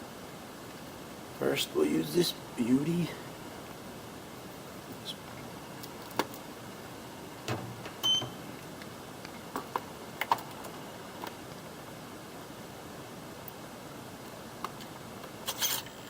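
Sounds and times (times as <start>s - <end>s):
high beep: 8.0s - 8.4s.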